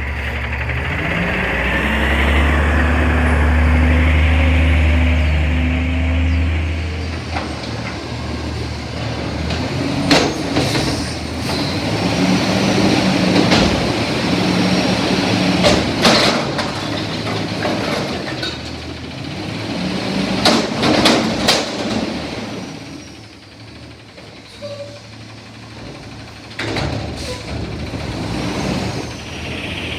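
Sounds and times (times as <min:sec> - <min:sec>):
garbage truck engine running: 0:00.0 - 0:29.9
loud metal clanks and bangs: 0:06.6 - 0:29.5.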